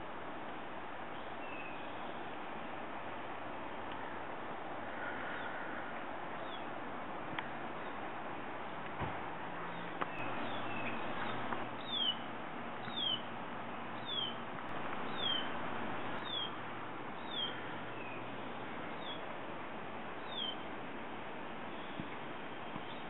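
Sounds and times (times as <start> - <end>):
faint background hiss: 0.0 - 23.0
small bird chirping: 9.7 - 13.3, 14.0 - 14.4, 15.0 - 15.5, 16.2 - 16.6, 17.2 - 18.3, 20.2 - 20.6.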